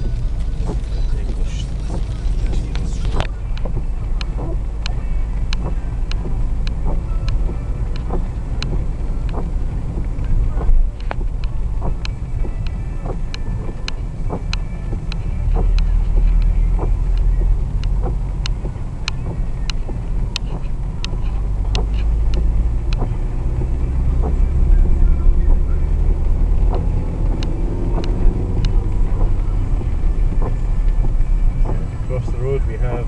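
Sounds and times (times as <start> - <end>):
car road and engine rumble: 0.0 - 33.0
raindrops ticking on car: 0.0 - 33.0.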